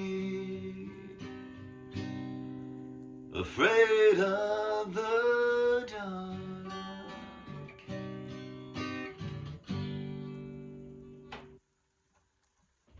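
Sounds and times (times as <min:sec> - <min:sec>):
acoustic guitar strummed chords: 0:00.0 - 0:11.6.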